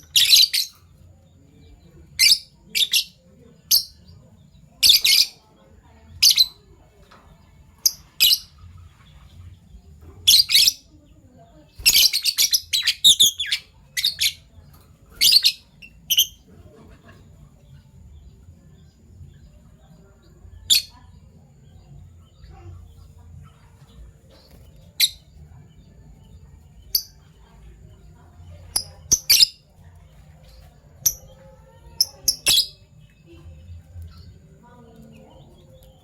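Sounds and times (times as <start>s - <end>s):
lovebirds chirping: 0.0s - 36.0s.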